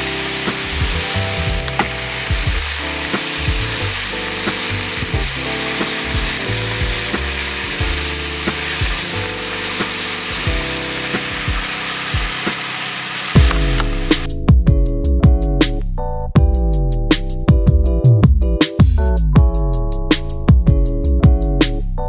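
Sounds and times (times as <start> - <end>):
food sizzling in a pan: 0.0 - 14.3
background music with beat: 0.0 - 22.0.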